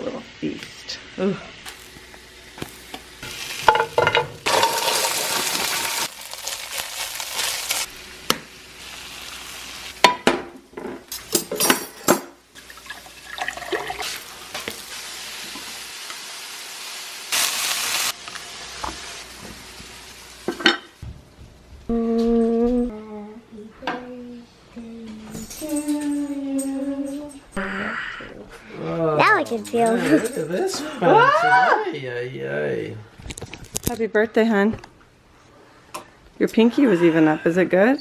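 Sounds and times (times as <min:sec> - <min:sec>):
food sizzling in a pan: 0:00.0 - 0:21.8
utensils and dishes clattering: 0:03.6 - 0:06.1, 0:10.0 - 0:14.2, 0:29.5 - 0:30.8.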